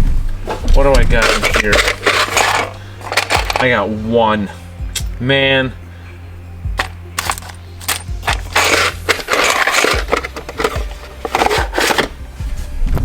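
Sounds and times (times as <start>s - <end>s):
metal screws clinking and rattling: 1.2s - 3.8s, 6.7s - 12.1s.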